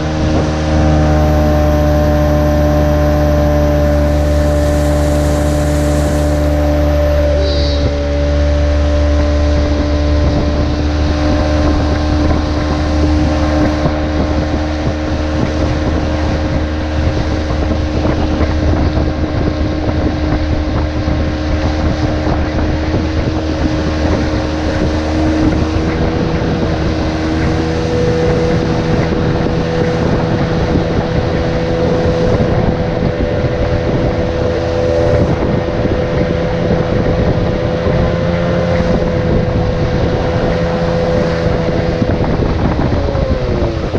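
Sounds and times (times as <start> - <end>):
rc boat motor whine: 0.0 - 43.9
wind on microphone: 0.0 - 43.9.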